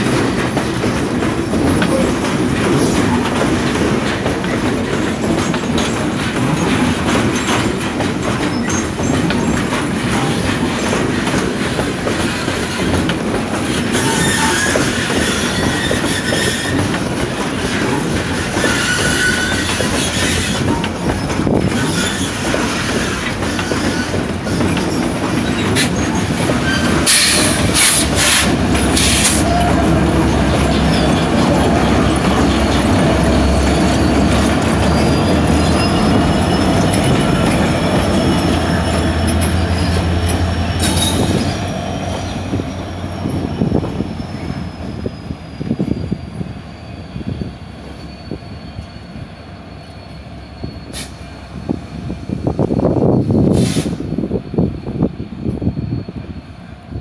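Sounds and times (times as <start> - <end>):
freight wagon wheels clattering: 0.0 - 45.0
diesel locomotive engine rumble: 0.0 - 57.0
wheel squeal: 13.8 - 51.8, 53.1 - 56.5.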